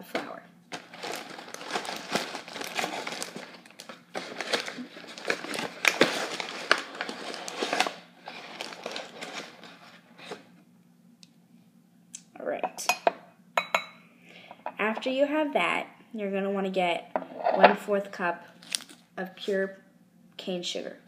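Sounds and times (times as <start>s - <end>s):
flour bag crinkling: 0.7s - 10.4s.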